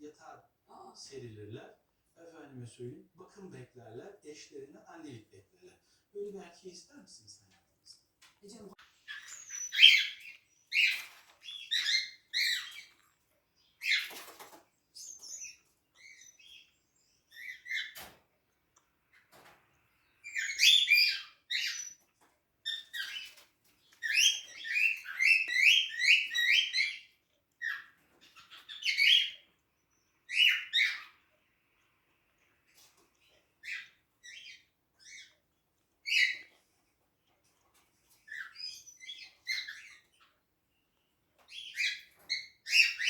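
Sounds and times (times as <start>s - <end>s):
cockatiels chirping: 9.0s - 31.4s, 32.4s - 43.0s.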